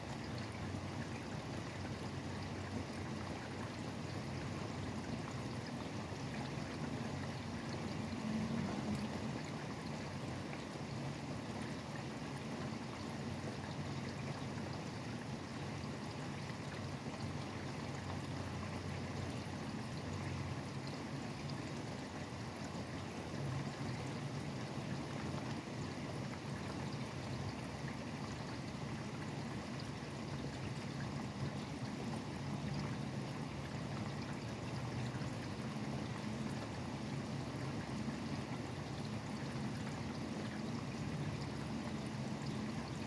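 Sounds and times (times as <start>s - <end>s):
highway traffic rumble: 6.4s - 9.7s.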